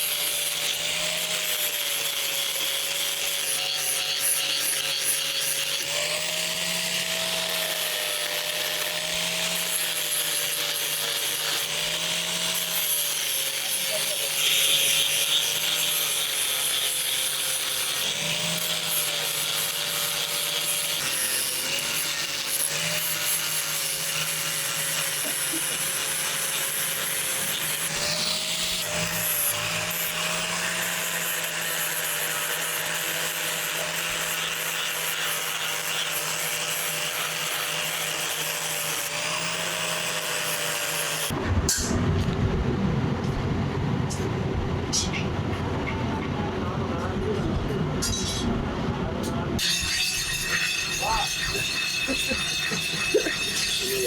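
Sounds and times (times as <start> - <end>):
power grinder on steel blade: 0.0 - 41.4, 49.6 - 54.0
loud low rumble: 41.4 - 47.7.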